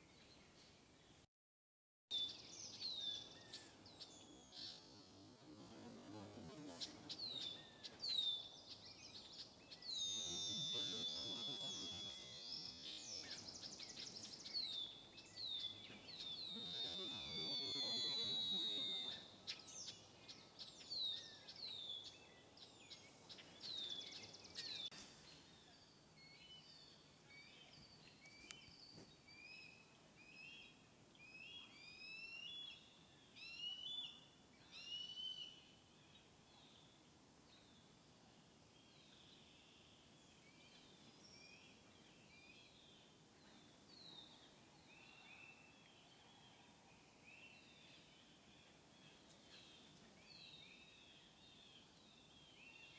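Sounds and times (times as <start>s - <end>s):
small birds calling: 2.1s - 25.0s.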